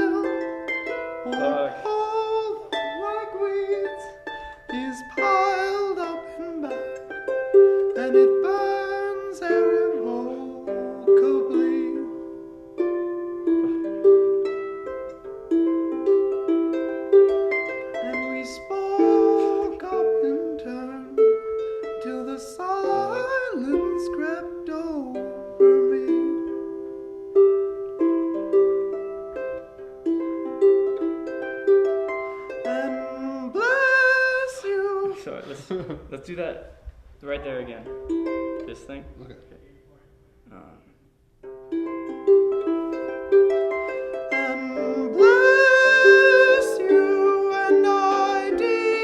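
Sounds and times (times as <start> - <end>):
plucked string instrument melody: 0.0 - 35.2, 37.6 - 40.5, 41.3 - 49.0.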